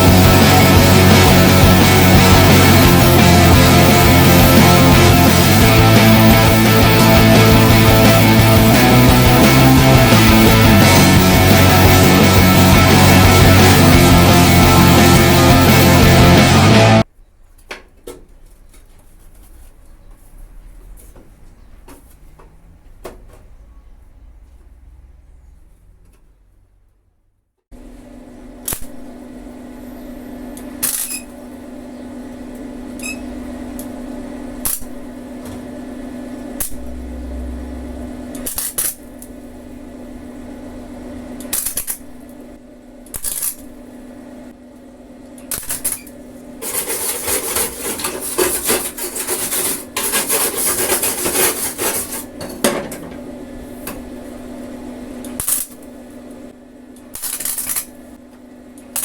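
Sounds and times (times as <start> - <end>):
welding arc crackling: 0.0 - 17.0, 28.7 - 29.1, 34.5 - 35.2, 36.3 - 39.4, 41.4 - 42.3, 43.1 - 43.8, 45.5 - 52.4, 55.2 - 55.9, 57.1 - 58.0
electrical hum: 0.0 - 17.4, 27.8 - 59.0.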